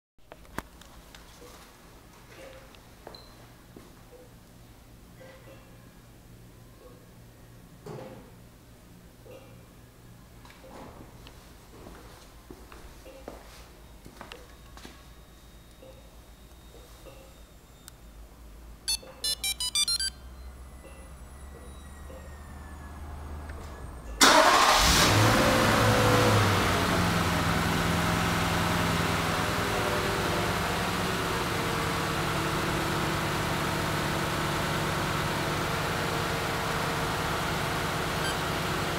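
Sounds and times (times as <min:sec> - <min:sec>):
short electronic beeps: 0:18.9 - 0:22.7, 0:38.2 - 0:38.5
car engine starting and idling: 0:20.3 - 0:38.9.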